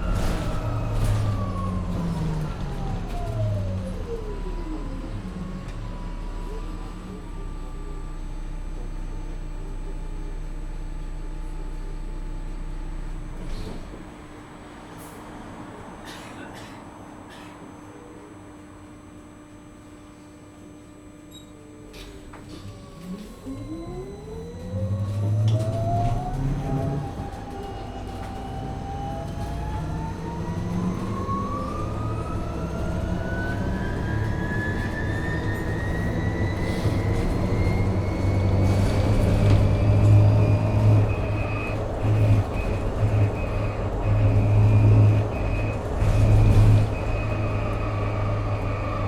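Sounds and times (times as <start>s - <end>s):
drivetrain and road hum: 0.0s - 14.8s, 24.4s - 49.0s.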